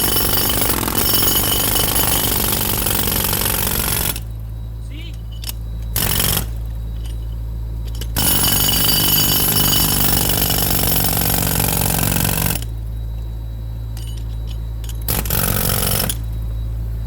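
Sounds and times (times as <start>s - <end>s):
jackhammer hammering concrete: 0.0s - 4.2s, 8.2s - 12.6s.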